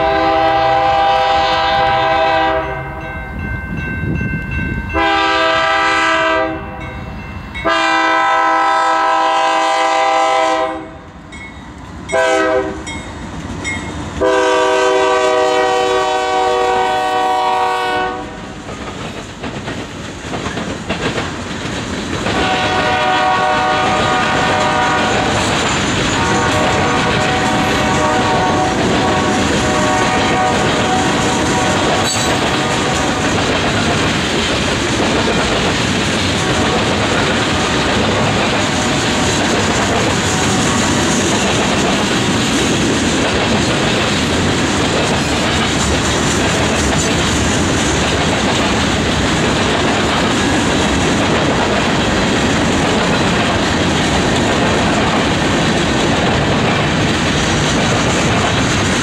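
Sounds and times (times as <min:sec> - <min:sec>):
locomotive air horn: 0:00.0 - 0:03.0, 0:05.0 - 0:06.8, 0:07.6 - 0:11.0, 0:12.1 - 0:12.9, 0:14.2 - 0:18.4, 0:22.3 - 0:25.4, 0:26.1 - 0:33.3
train wheels on rails: 0:00.0 - 0:59.0.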